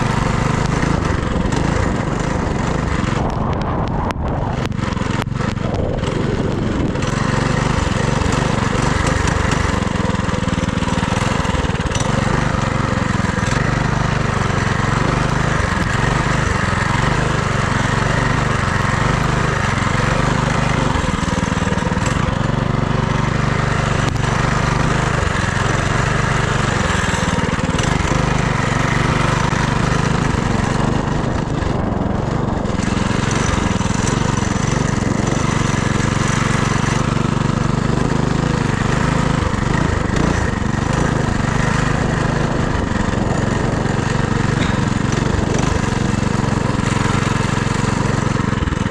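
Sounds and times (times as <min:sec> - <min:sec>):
minibike engine running: 0:00.0 - 0:48.9.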